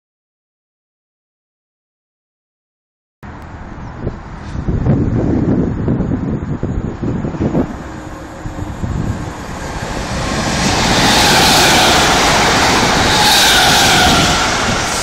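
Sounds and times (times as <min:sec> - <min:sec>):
wind buffeting microphone: 0:03.4 - 0:15.0
train rushing past: 0:07.0 - 0:15.0
train whine sliding down: 0:07.2 - 0:15.0.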